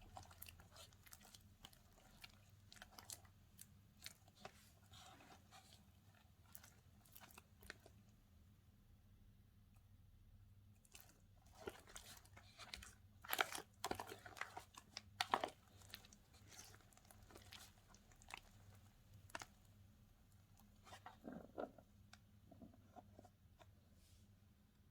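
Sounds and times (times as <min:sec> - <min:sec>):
slime squeezed with wet crackles: 0:00.0 - 0:07.9.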